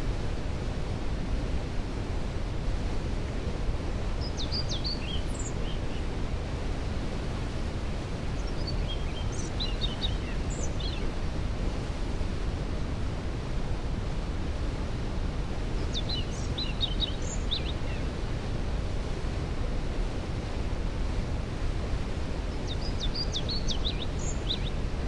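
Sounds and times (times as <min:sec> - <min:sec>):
songbird chirps and trills: 0:04.2 - 0:06.1, 0:08.4 - 0:11.0, 0:22.5 - 0:24.8.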